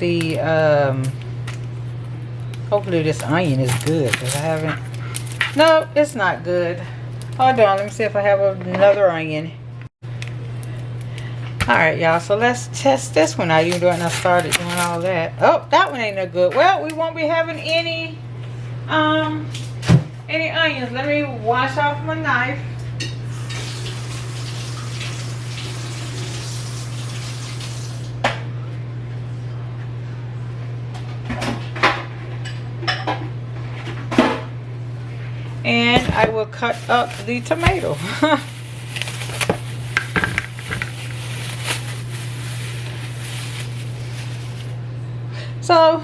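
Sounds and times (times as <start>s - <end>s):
steady low hum: 0.0s - 23.5s, 28.0s - 46.0s
kitchen tap running: 23.3s - 28.1s.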